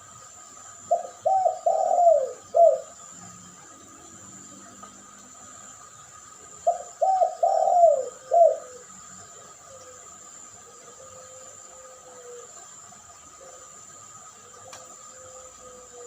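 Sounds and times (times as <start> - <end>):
dove cooing: 0.9 - 4.1, 6.5 - 16.0.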